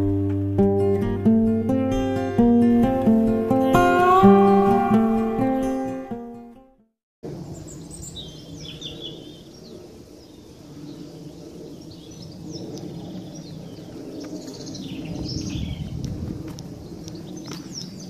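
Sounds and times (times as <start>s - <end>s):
acoustic guitar tune: 0.0s - 6.9s
birds chirping and singing: 7.4s - 16.0s, 16.8s - 18.0s.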